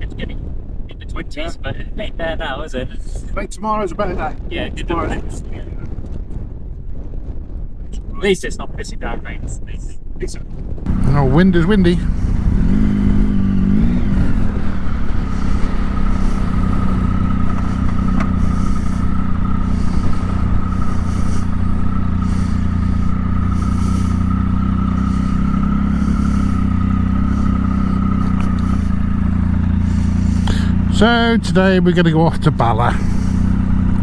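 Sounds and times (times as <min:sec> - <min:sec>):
motorcycle engine running: 0:10.8 - 0:34.0.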